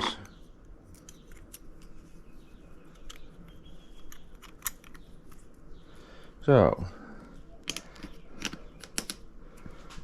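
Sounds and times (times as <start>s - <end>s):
small metal parts clicking: 4.0s - 5.0s.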